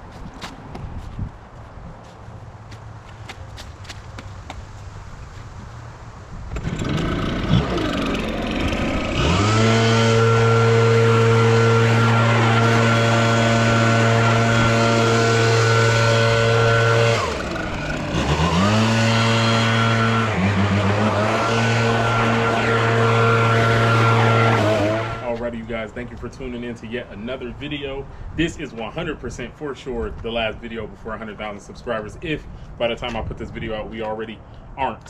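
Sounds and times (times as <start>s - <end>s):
small petrol engine revving: 6.5s - 25.3s.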